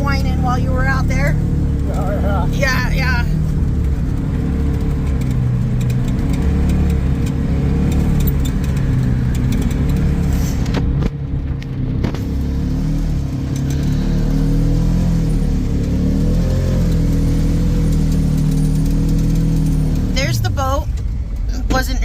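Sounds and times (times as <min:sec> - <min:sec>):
utility vehicle engine running: 0:00.0 - 0:22.0.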